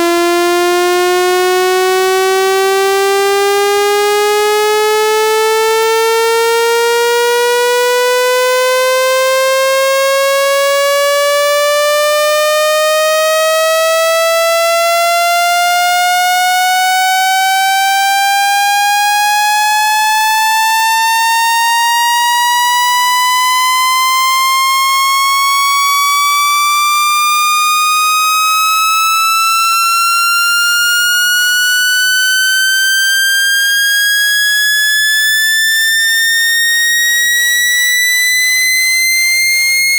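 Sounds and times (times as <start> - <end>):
buzzy electronic tone rising: 30.1 - 39.9.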